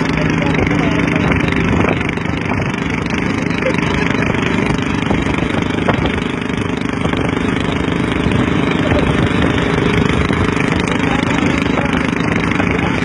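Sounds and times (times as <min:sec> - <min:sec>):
motorcycle engine running: 0:00.0 - 0:13.0
background voices: 0:08.0 - 0:13.0.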